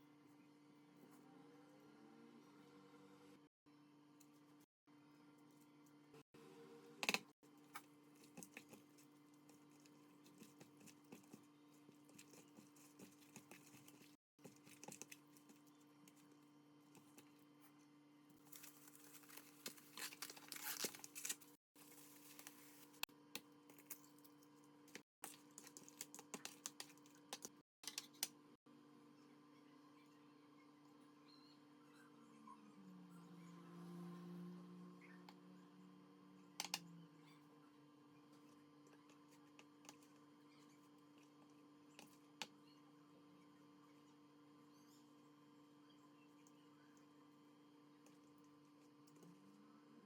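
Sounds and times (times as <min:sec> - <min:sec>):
low electrical hum: 0:00.0 - 0:50.0
crinkling and rustling: 0:18.4 - 0:23.1.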